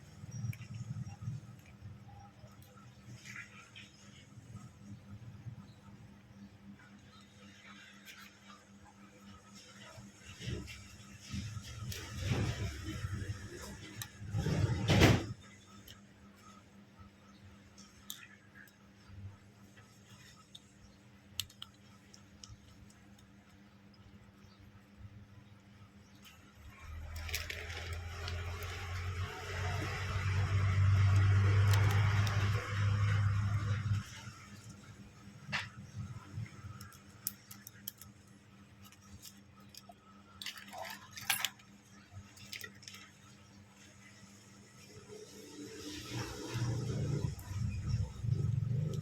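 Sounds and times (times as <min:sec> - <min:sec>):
low steady hum: 0:00.0 - 0:49.0
small parts and tools clicking: 0:17.6 - 0:24.3, 0:26.2 - 0:43.4
small clicks and taps of tools: 0:20.1 - 0:23.3.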